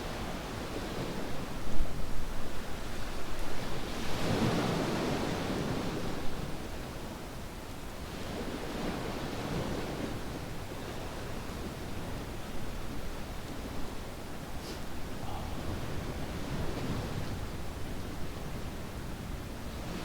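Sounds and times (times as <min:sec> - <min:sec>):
ocean waves breaking: 0:15.0 - 0:18.7.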